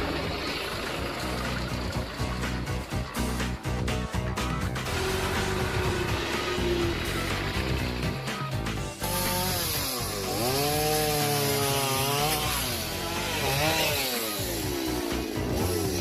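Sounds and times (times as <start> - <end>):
chainsaw cutting wood: 4.8 - 16.0.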